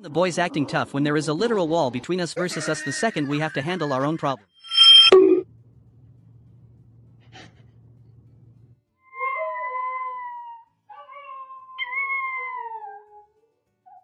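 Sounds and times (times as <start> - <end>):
faint low hum: 5.4 - 8.8.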